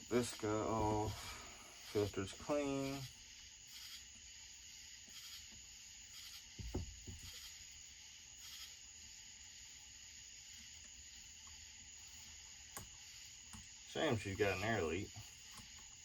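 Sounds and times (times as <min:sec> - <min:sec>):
night insects chirring: 0:00.0 - 0:16.0.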